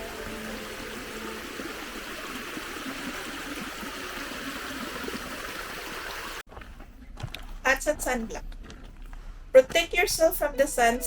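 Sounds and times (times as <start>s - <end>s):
stream water flowing: 0.0s - 6.4s.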